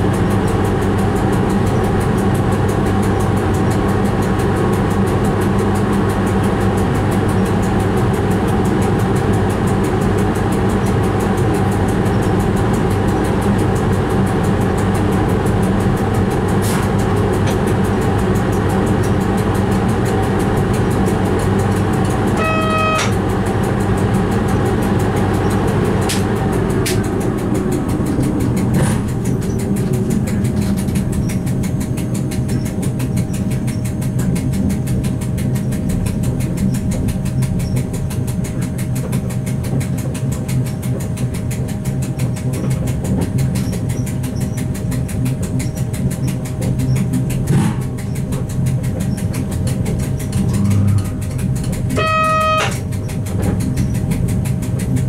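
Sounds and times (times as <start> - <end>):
train hum and rumble: 0.0 - 55.0
brief high train toot: 22.3 - 23.2, 51.9 - 52.9.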